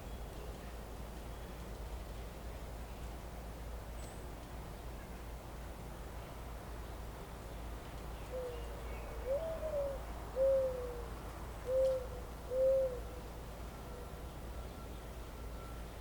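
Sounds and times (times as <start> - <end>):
bird hooting: 9.2 - 13.3.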